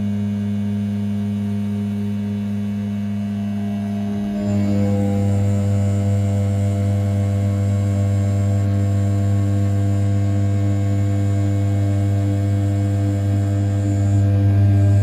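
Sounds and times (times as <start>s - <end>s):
cnc mill spindle humming: 0.0s - 15.0s
high whine of end mill: 3.0s - 15.0s.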